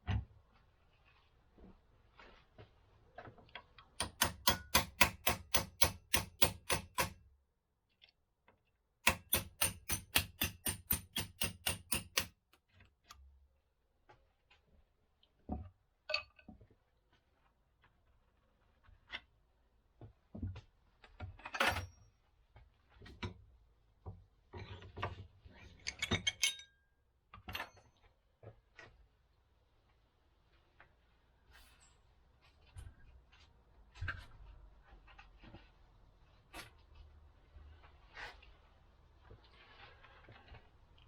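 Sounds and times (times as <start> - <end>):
tools knocking on metal: 4.0 - 7.2, 9.0 - 12.3.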